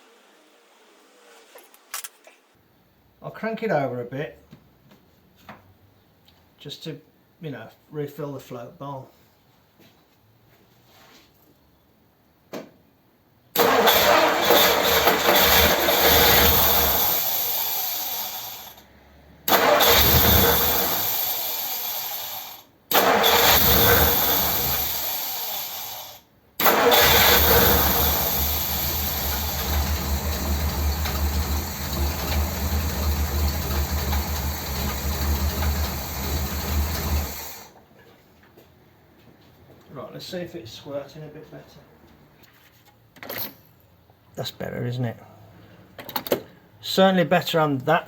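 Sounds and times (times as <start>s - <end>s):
car engine cranking on starter: 13.6s - 37.8s.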